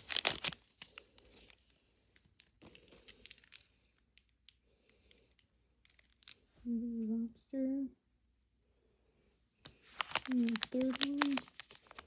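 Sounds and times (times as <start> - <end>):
plastic wrappers crinkling: 0.0 - 4.5, 5.3 - 6.5, 9.6 - 12.0.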